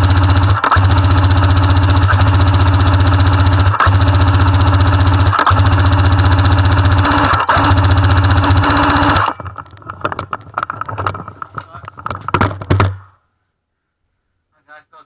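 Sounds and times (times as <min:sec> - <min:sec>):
airsoft gun full-auto bursts: 0:00.0 - 0:09.4.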